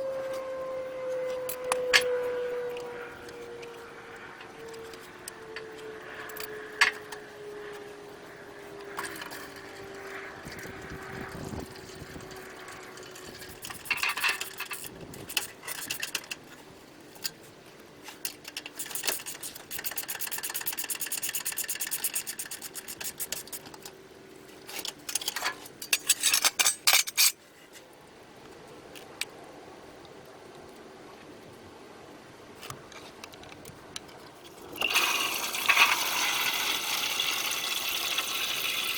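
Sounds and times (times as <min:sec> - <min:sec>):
tools clicking and scraping metal: 0:08.7 - 0:10.7, 0:11.5 - 0:17.4, 0:18.0 - 0:24.0, 0:24.6 - 0:27.4.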